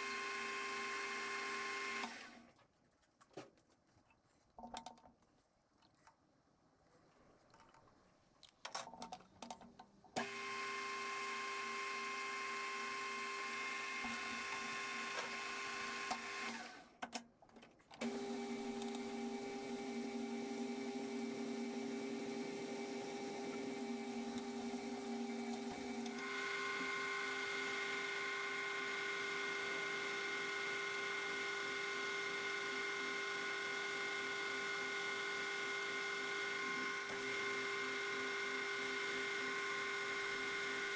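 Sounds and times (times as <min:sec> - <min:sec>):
lathe motor whining: 0:14.0 - 0:16.8.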